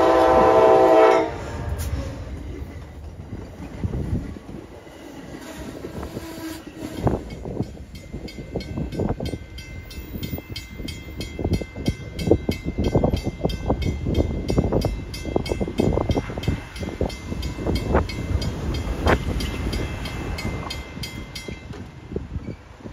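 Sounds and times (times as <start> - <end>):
low train rumble: 0.0 - 22.9
train wheels clattering over rail joints: 1.4 - 22.7.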